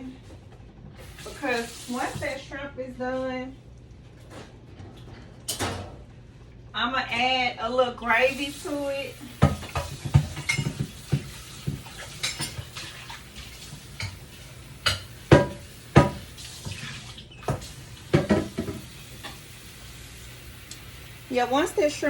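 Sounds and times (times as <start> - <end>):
dishes and utensils clinking: 9.4 - 19.5.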